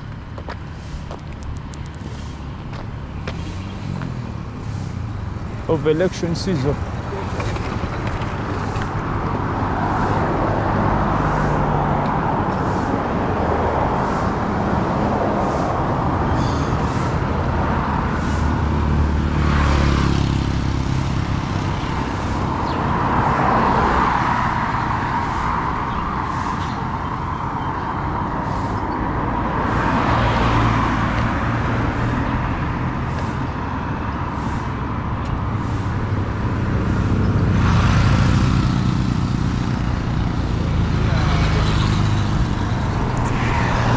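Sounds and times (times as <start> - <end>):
engine hum: 0.0 - 43.9
road noise rushing: 0.0 - 43.9.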